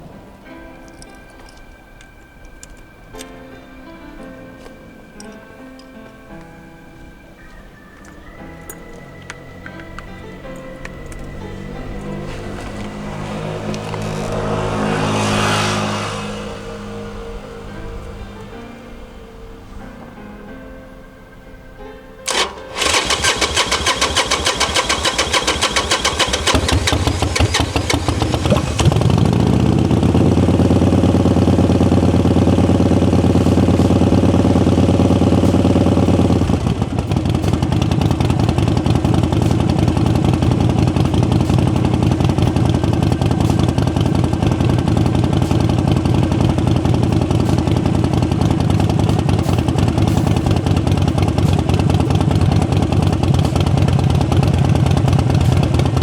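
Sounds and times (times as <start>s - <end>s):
motorcycle engine revving and idling: 9.3s - 18.7s, 22.3s - 56.0s
electric starter cranking: 22.3s - 30.0s.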